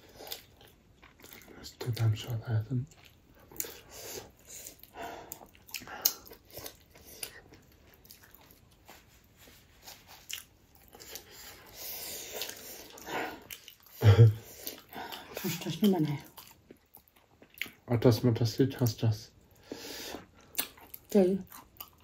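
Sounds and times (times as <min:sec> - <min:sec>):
person chewing and biting food: 0:00.0 - 0:02.1, 0:02.9 - 0:15.6, 0:16.3 - 0:17.8, 0:20.2 - 0:22.0.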